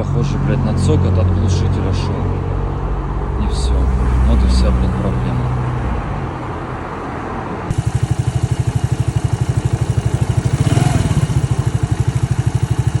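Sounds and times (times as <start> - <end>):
moped engine idling: 7.7 - 13.0.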